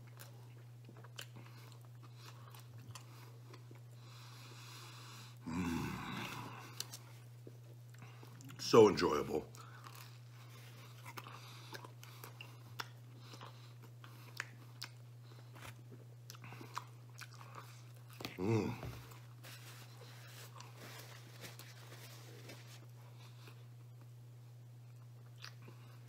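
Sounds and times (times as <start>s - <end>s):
man chewing pizza crust: 0.0s - 8.8s, 9.5s - 26.0s
steady low hum: 0.0s - 26.0s.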